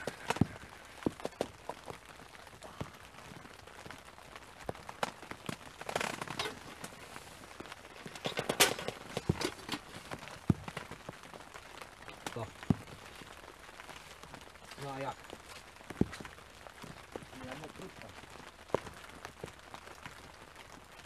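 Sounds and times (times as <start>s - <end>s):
rain dripping on umbrella canvas: 0.0s - 21.0s
gear rustling: 5.0s - 11.0s.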